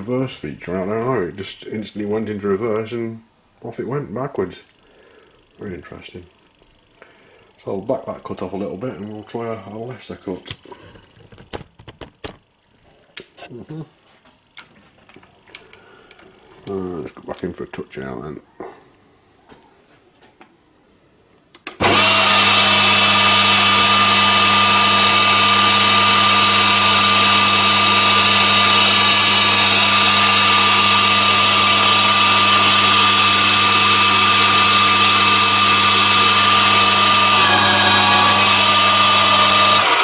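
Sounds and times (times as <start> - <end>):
lathe motor humming and whining: 21.8 - 40.0.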